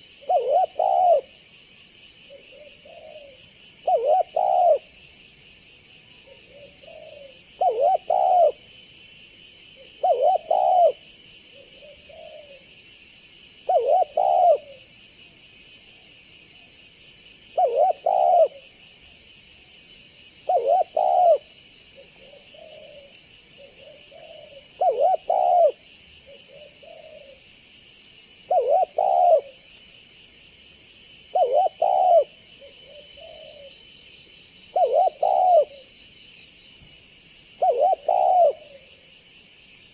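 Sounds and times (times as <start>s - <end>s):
dove cooing: 0.0s - 1.4s, 2.3s - 4.9s, 6.3s - 8.6s, 9.8s - 12.6s, 13.7s - 14.8s, 17.6s - 18.7s, 20.5s - 27.4s, 28.5s - 29.6s, 31.3s - 33.7s, 34.7s - 35.9s, 37.6s - 39.0s.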